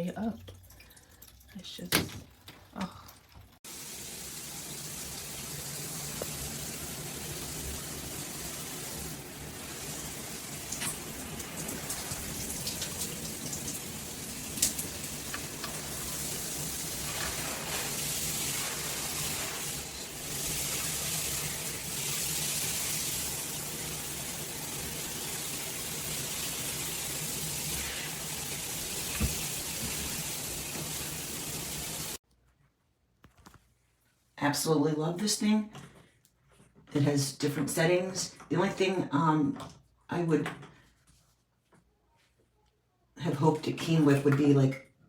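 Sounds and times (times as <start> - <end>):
shower water spraying: 3.6 - 32.2.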